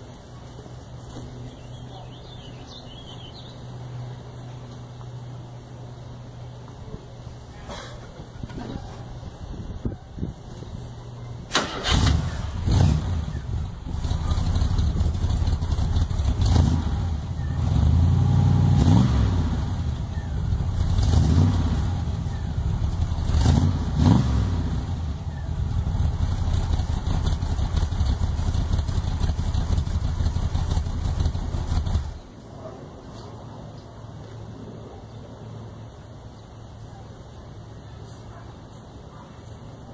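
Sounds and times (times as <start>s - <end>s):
vehicle engine revving: 11.5s - 32.2s.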